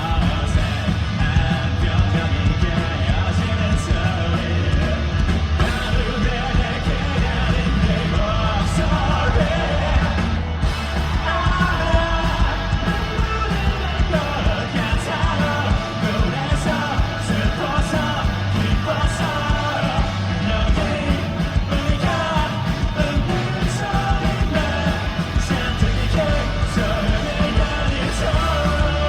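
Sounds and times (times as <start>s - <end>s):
rock band playing: 0.0s - 29.0s
steady drum beat: 0.0s - 29.0s
person singing: 11.2s - 29.0s.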